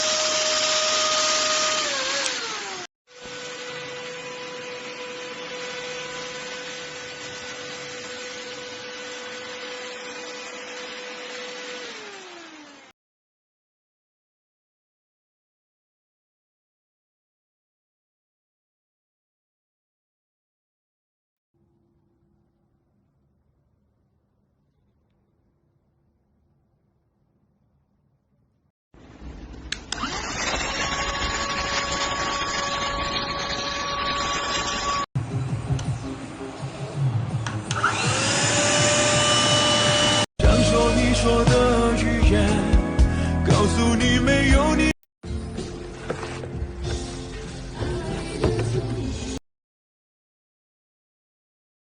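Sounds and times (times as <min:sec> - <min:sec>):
vacuum cleaner running: 0:00.0 - 0:12.9, 0:29.9 - 0:35.1, 0:37.7 - 0:40.4.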